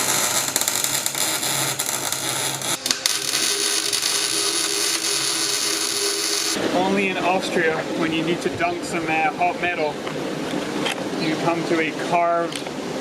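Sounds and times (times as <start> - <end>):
welding arc crackling: 0.0 - 6.6.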